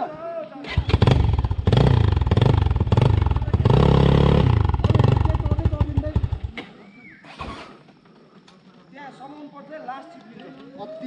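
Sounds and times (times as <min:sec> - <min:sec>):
dirt bike engine revving: 0:00.7 - 0:06.6.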